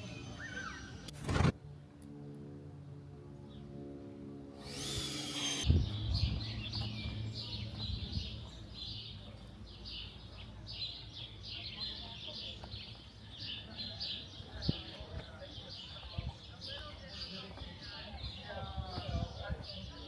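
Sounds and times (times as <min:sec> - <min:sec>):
small birds chirping: 0:04.6 - 0:20.0.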